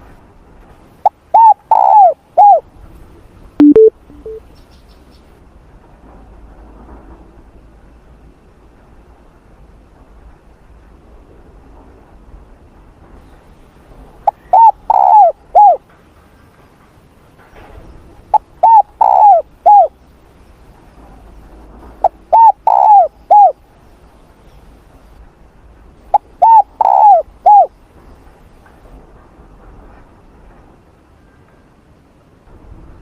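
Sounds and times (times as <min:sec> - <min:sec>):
dove cooing: 0:01.0 - 0:02.6, 0:14.3 - 0:15.8, 0:18.3 - 0:19.9, 0:22.0 - 0:23.6, 0:26.1 - 0:27.7.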